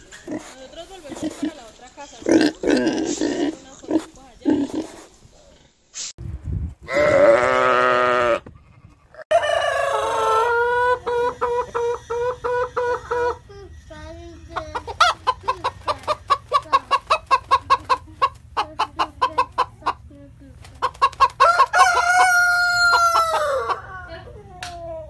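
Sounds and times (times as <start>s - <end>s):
hens clucking: 8.4s - 24.3s
rooster crowing: 9.3s - 12.6s, 21.4s - 24.2s.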